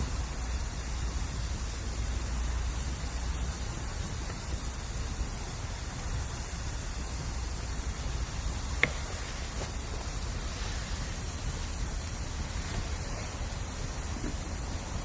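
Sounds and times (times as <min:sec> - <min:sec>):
campfire hissing: 0:00.0 - 0:15.0
fire crackling pop: 0:07.8 - 0:10.5.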